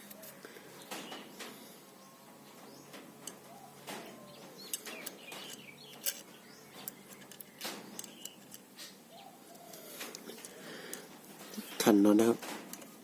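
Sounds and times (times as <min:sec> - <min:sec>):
doves cooing: 0:00.1 - 0:11.8
birds chirping: 0:00.1 - 0:13.0.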